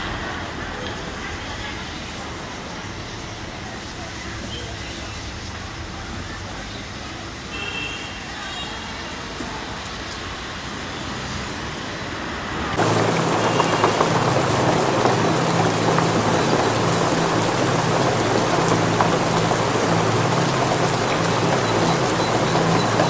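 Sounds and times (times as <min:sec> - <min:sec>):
heavy rain downpour: 0:00.0 - 0:23.0
raindrops ticking on hard surfaces: 0:12.8 - 0:23.0.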